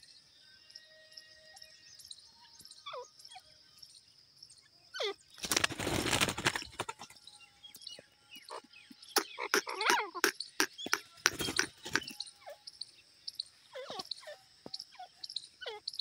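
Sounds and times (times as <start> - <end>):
loud rustling noise: 5.4 - 6.8.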